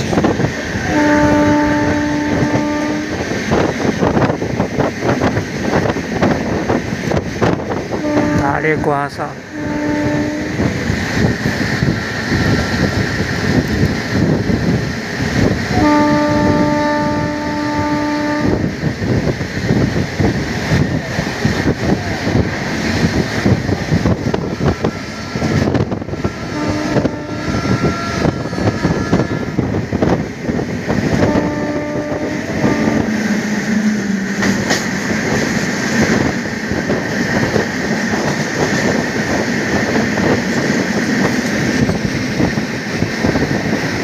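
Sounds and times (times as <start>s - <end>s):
locomotive rushing rumble: 0.0s - 44.0s
train horn: 0.7s - 3.6s, 7.9s - 10.8s, 15.6s - 18.8s, 24.3s - 30.0s, 31.0s - 34.8s.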